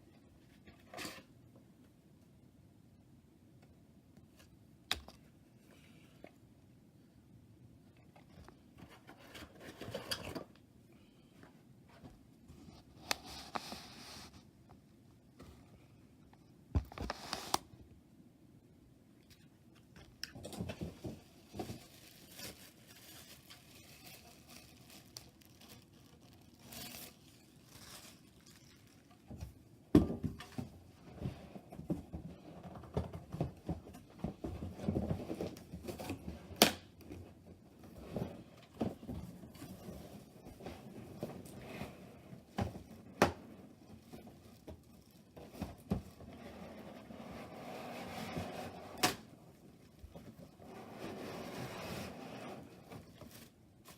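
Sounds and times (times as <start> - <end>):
wrapping rustling: 20.9 - 29.3.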